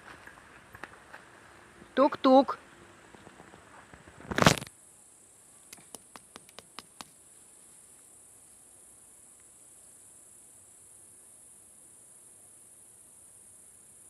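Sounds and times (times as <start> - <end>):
insects chirring: 0.0 - 14.0
sharp clicks: 5.7 - 7.1.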